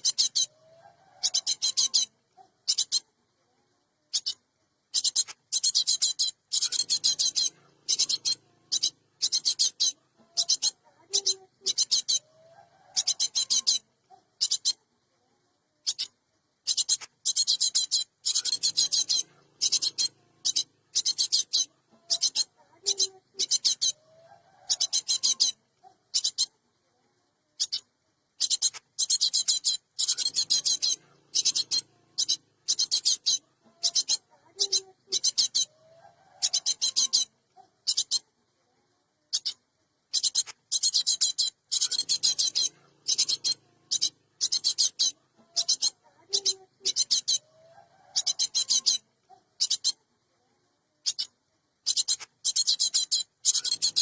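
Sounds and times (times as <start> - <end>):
bird rasping scold calls: 16.7 - 26.5, 40.1 - 49.0.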